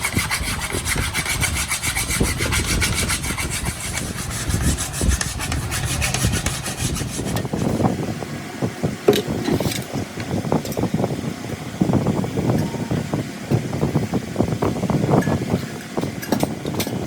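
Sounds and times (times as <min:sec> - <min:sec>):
hand work on metal parts: 0:00.0 - 0:08.0.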